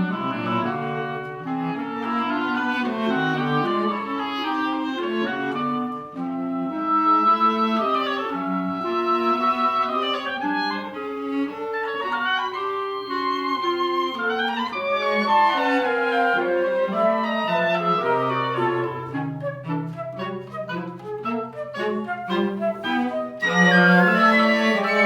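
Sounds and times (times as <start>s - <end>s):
clarinet melody: 0.0s - 25.0s
woodwind chamber music: 0.0s - 25.0s.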